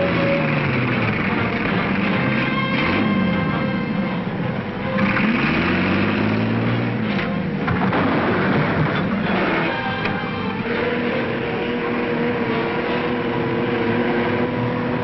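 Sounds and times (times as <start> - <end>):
train running: 0.0 - 15.0.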